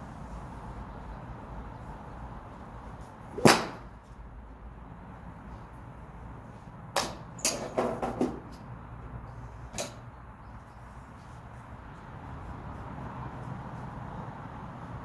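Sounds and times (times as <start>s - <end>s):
golf clubs striking balls: 3.3s - 4.0s, 7.0s - 8.7s, 9.7s - 10.0s.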